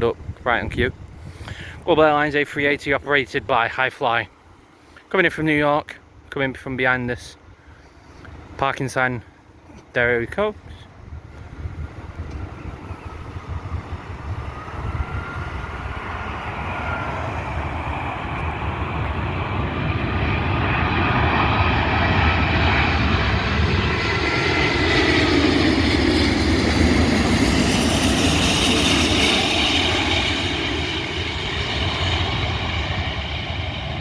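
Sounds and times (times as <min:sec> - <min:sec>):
jet engines whining: 0:06.4 - 0:34.0.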